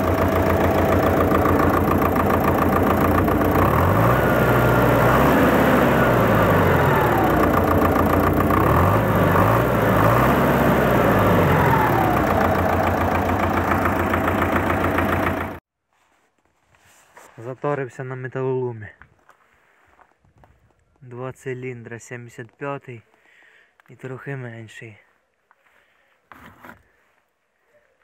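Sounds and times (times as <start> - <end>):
tractor diesel engine revving: 0.0 - 15.6.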